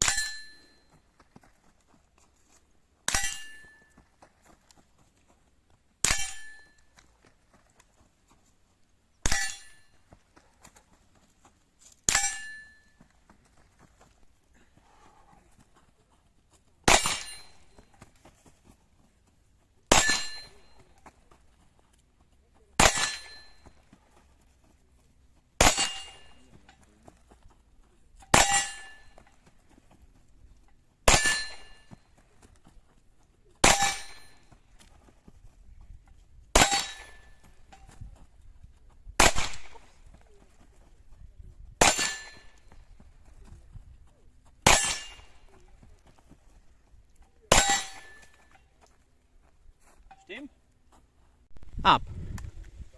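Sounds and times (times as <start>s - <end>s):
rifle shots with metallic ring: 0.0s - 0.8s, 3.1s - 3.8s, 6.0s - 6.8s, 9.2s - 9.9s, 12.1s - 12.9s, 16.9s - 17.8s, 19.9s - 20.9s, 22.8s - 23.8s, 25.6s - 26.4s, 28.2s - 29.3s, 31.1s - 31.9s, 33.6s - 34.5s, 36.6s - 37.4s, 39.2s - 39.9s, 41.8s - 42.8s, 44.6s - 45.5s, 47.5s - 48.5s.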